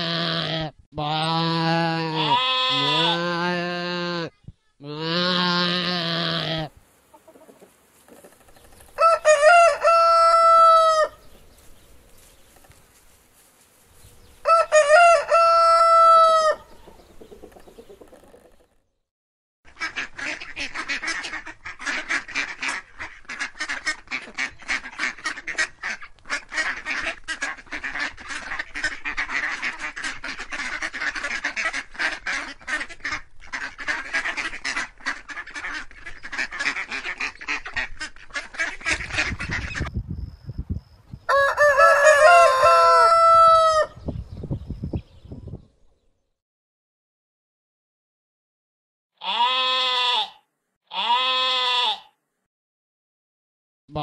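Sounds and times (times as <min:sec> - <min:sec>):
lamb bleating: 0:00.0 - 0:06.7, 0:49.2 - 0:52.2
rooster crowing: 0:09.0 - 0:11.2, 0:14.4 - 0:16.8, 0:41.3 - 0:44.0
ducks quacking: 0:19.7 - 0:39.9.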